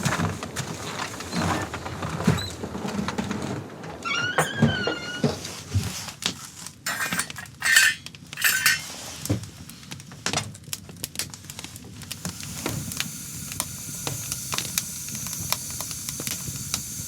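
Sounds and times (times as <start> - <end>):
metal cookware clinking: 6.9 - 8.9
short scraping strokes: 6.9 - 9.0.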